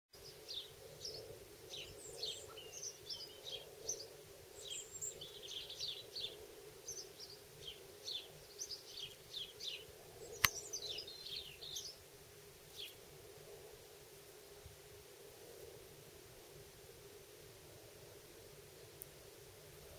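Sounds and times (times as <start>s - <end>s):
birds chirping: 0.2s - 12.0s.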